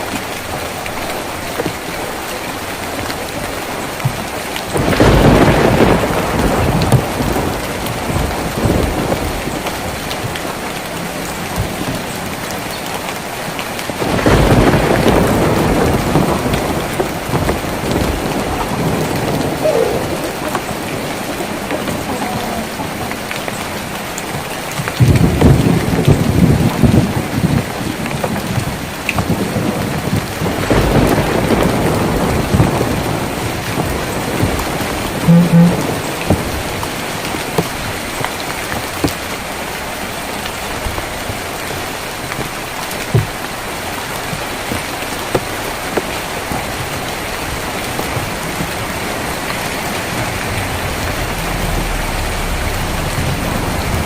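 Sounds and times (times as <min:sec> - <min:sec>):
rain on a tin roof: 0:00.0 - 0:54.0
thunder rolling: 0:03.4 - 0:12.7, 0:13.9 - 0:39.0, 0:45.7 - 0:54.0
low rumble: 0:49.9 - 0:54.0.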